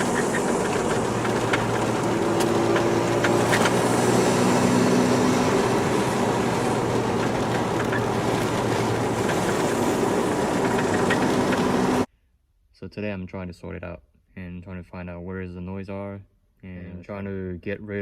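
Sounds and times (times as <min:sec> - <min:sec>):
car engine and road drone: 0:00.0 - 0:12.1.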